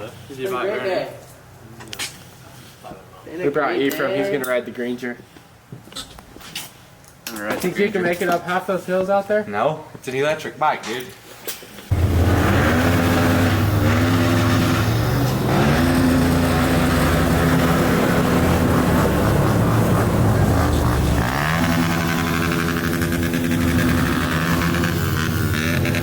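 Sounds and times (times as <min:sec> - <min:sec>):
dirt bike engine revving: 0:11.9 - 0:26.0.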